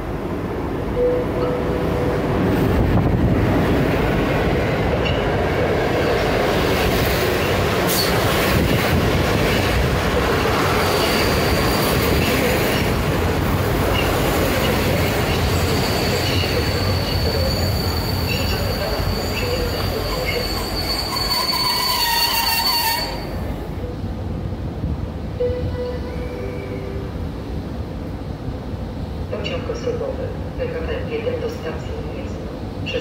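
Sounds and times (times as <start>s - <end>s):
passenger train rumbling: 0.0s - 33.0s
high wheel squeal: 15.5s - 23.5s.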